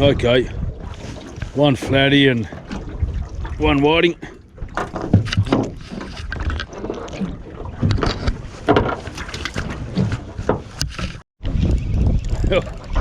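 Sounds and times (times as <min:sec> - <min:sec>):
wind buffeting microphone: 0:00.0 - 0:13.0
handling knocks and rattles: 0:04.7 - 0:07.2, 0:07.8 - 0:11.2.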